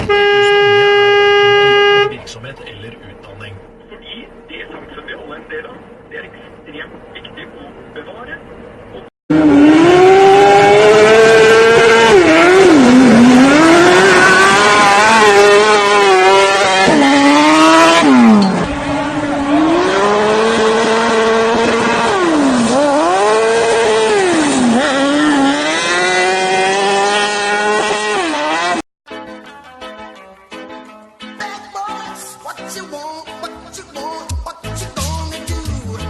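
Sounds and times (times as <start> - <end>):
vehicle engine revving: 9.3 - 28.8.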